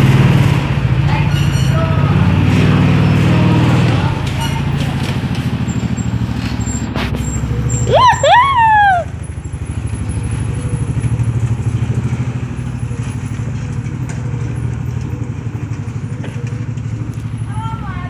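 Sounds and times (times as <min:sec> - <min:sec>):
car engine running: 0:00.0 - 0:18.0
gliding pitched call: 0:06.0 - 0:09.3.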